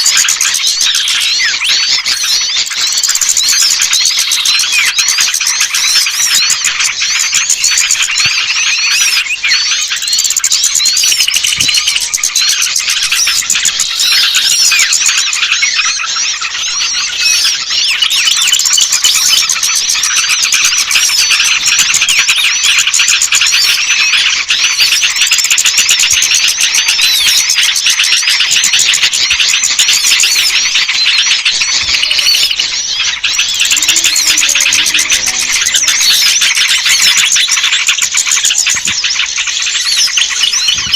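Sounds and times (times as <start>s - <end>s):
songbirds chirping and twittering: 0.0s - 40.9s.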